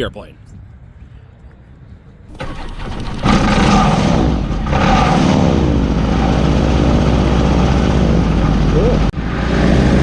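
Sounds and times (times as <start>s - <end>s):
aircraft engine starting and running: 2.3s - 10.0s.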